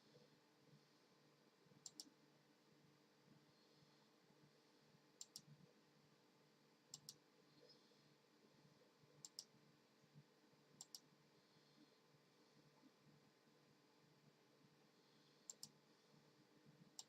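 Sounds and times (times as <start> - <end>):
faint steady hum: 0.0 - 17.0
sharp clicks in pairs: 1.9 - 2.1.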